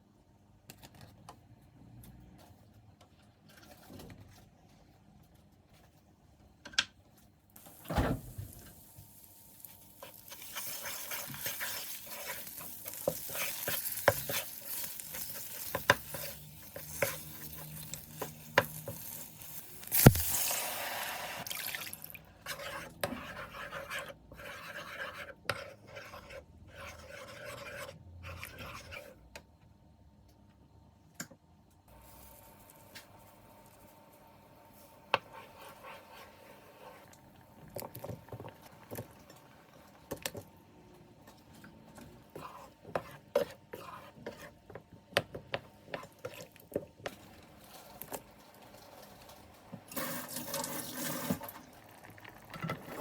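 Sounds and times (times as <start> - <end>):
cooking hiss: 7.6 - 22.2, 31.9 - 40.4.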